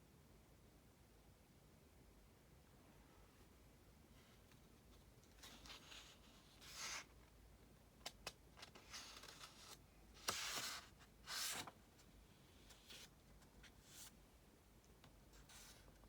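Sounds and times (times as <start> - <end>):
book pages turning: 8.0 - 11.8.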